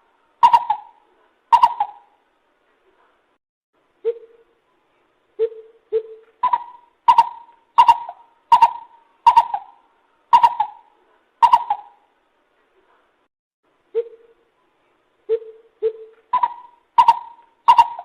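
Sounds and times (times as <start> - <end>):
bird deep hoots: 0.4 - 2.1, 5.4 - 12.0, 15.3 - 18.0.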